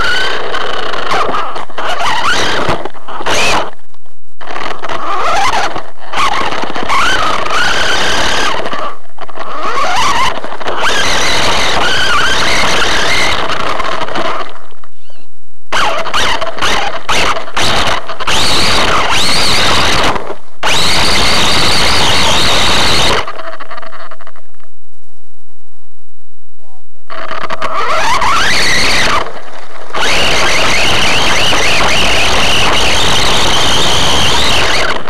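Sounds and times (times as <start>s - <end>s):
toy car motor whining and rattling: 4.6s - 14.4s, 15.7s - 23.5s, 27.5s - 35.0s.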